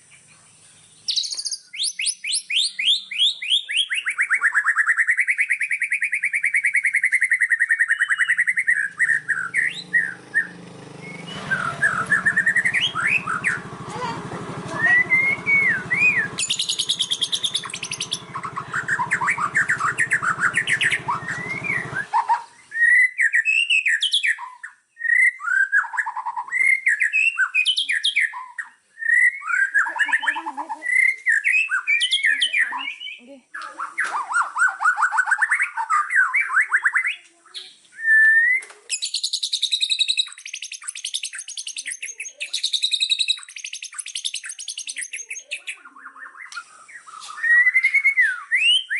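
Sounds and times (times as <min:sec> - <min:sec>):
songbirds trilling and chirping: 0:00.0 - 0:48.9
low background hum: 0:08.7 - 0:22.7.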